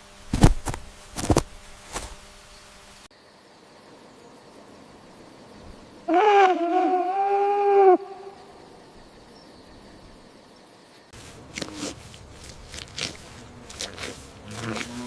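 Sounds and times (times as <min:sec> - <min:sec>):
rough noisy animal sound: 0:04.2 - 0:15.0
long pitched animal call: 0:06.1 - 0:08.8.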